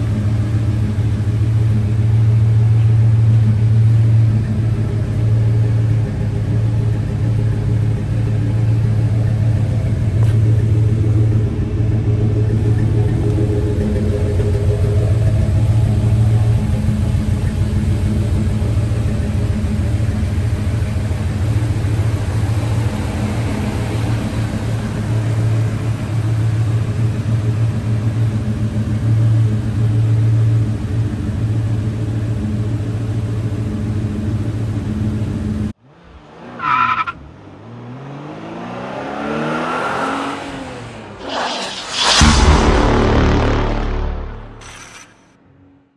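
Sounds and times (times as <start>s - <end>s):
pickup truck engine running: 0.0s - 35.7s.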